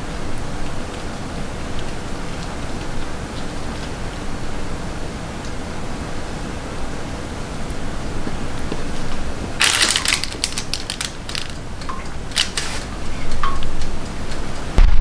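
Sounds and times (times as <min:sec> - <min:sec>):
steady hiss: 0:09.2 - 0:14.0
quick clicks and clatters: 0:09.6 - 0:13.6.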